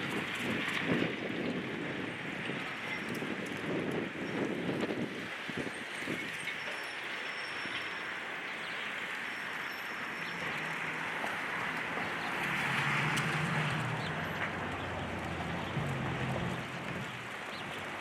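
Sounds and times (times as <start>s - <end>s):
diesel engine running under load: 12.7s - 17.5s.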